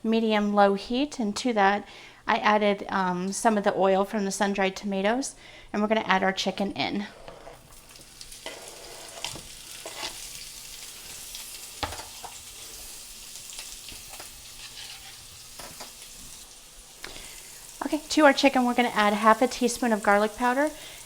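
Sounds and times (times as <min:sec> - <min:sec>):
chicken sizzling in oil: 0:07.6 - 0:21.0
utensil scraping pan: 0:08.4 - 0:10.4, 0:13.9 - 0:16.0.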